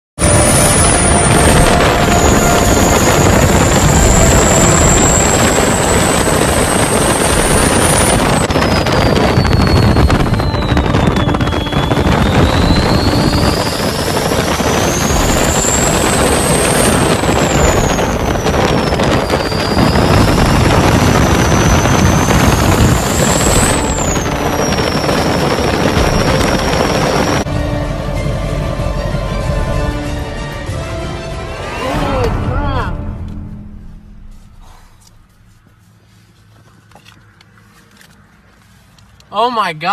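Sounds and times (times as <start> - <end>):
high whistle: 0.2 - 27.5
truck engine and road noise: 0.2 - 39.9.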